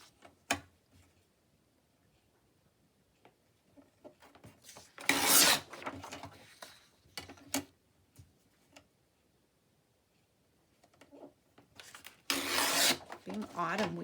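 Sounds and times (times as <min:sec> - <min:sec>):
rubbing scrape: 0:12.3 - 0:14.0
paper rustling and tapping: 0:13.1 - 0:14.0.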